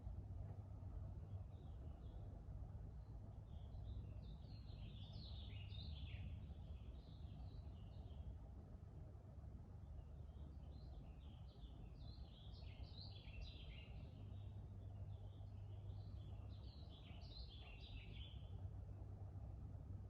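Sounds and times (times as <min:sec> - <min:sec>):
forest ambience rumble: 0:00.0 - 0:20.0
songbird chirping: 0:10.3 - 0:18.6.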